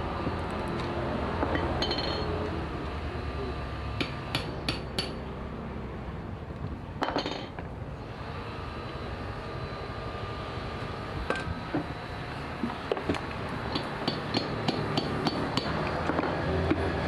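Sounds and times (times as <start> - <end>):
hand tools tapping on metal: 4.0 - 5.2, 12.9 - 16.8.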